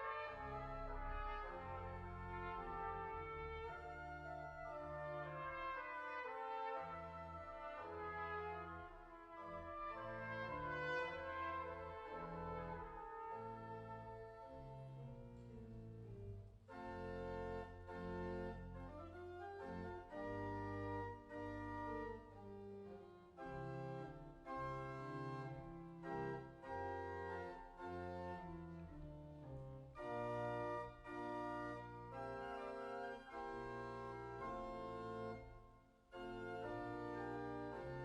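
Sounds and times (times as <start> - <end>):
organ chords over deep bass: 14.6 - 38.0.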